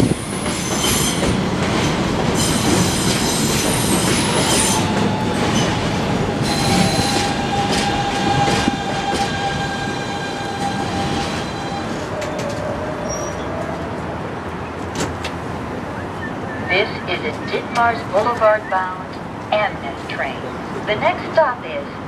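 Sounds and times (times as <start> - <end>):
subway train rolling: 0.0 - 22.0
high wheel squeal: 6.4 - 13.8.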